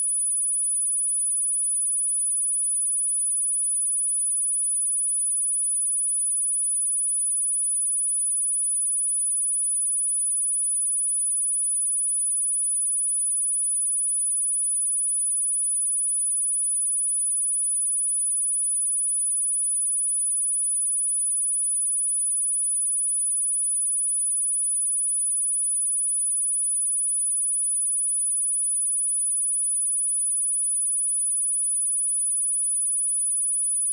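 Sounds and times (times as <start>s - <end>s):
high-pitched sine-wave test tone: 0.0s - 33.9s.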